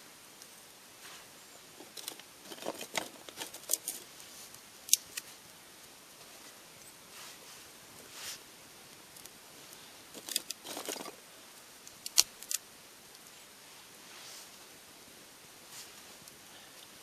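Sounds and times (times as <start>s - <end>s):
kindling crackling: 0.0s - 17.0s
wood snapping: 11.9s - 12.6s.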